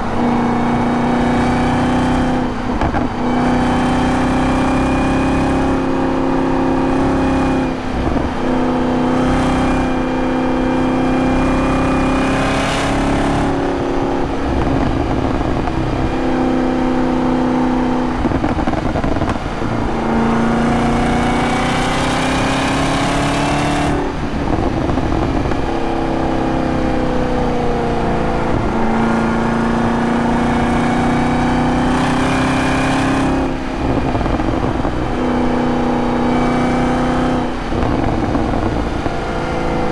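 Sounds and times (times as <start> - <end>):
car engine running hard: 0.0 - 39.9.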